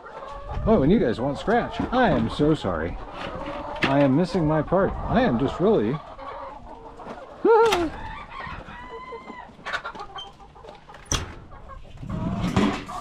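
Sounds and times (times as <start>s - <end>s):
chickens clucking and calling: 0.0s - 13.0s.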